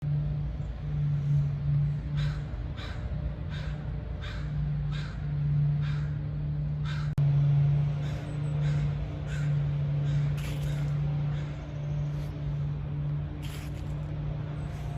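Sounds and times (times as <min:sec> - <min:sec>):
low hum: 0:00.0 - 0:14.9
crow cawing: 0:02.1 - 0:06.2, 0:06.8 - 0:07.1, 0:08.0 - 0:11.6.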